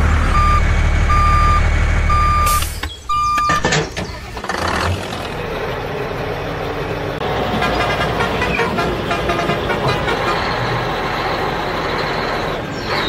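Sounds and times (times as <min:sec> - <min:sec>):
truck reversing alarm beeping: 0:00.0 - 0:04.4
low engine rumble: 0:00.0 - 0:13.0.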